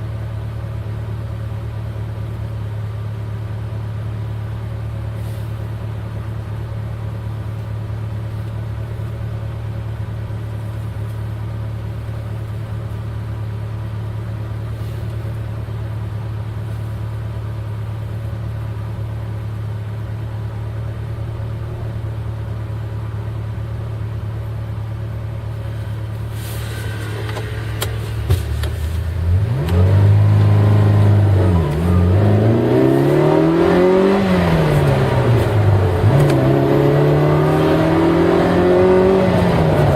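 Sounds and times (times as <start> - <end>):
car engine idling: 0.0 - 39.9
car engine revving: 25.8 - 39.9.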